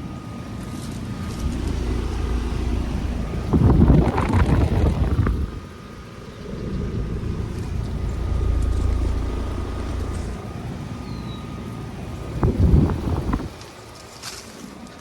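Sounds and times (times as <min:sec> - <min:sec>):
air conditioner unit running: 0:00.0 - 0:14.6
wind noise on microphone: 0:01.1 - 0:11.0, 0:12.2 - 0:13.8.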